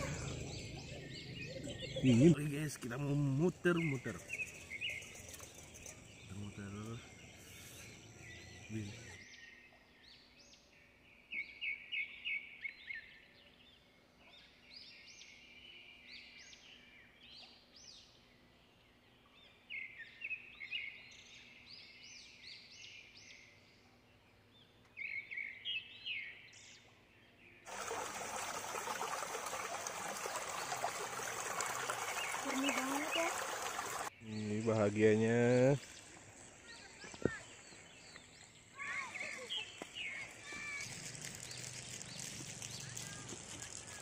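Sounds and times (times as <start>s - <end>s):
flowing water rushing: 27.7s - 34.1s
birds chirping high notes: 27.7s - 43.1s.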